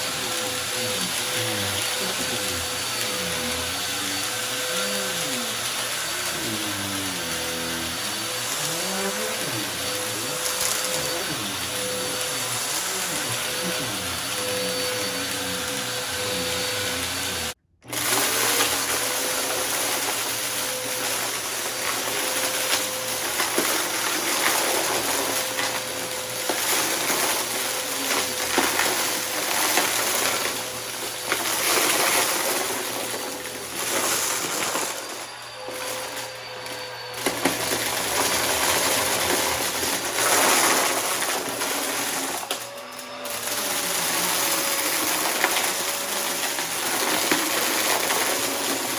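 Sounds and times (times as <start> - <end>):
vacuum cleaner motor whine: 0.0 - 48.9
debris crunching and clicking: 8.0 - 15.3, 17.8 - 36.6, 43.3 - 48.9.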